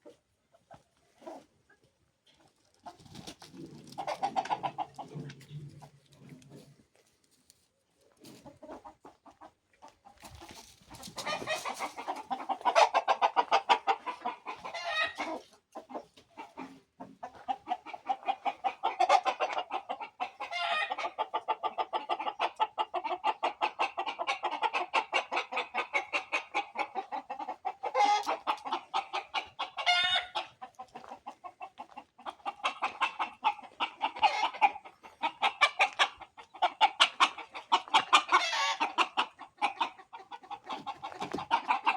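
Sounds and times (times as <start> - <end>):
chickens clucking and cackling: 0.0 - 41.9
roosters crowing: 27.9 - 30.5, 36.8 - 39.2.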